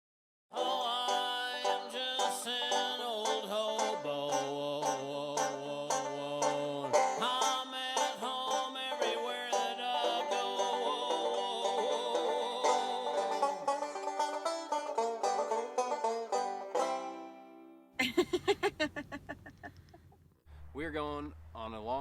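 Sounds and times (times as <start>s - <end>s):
fast picked banjo melody: 0.5s - 17.8s.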